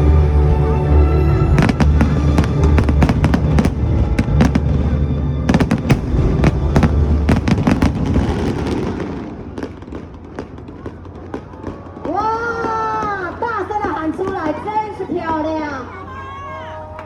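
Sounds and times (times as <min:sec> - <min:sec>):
music playing: 0:00.0 - 0:09.0
fireworks bangs and crackles: 0:01.4 - 0:15.3.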